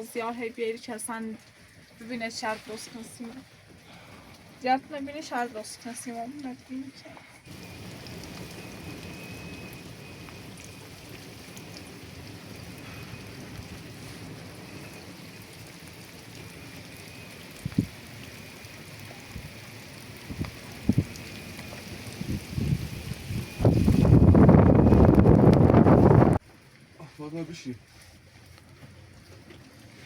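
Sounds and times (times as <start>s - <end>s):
heavy rain falling: 7.5s - 26.4s.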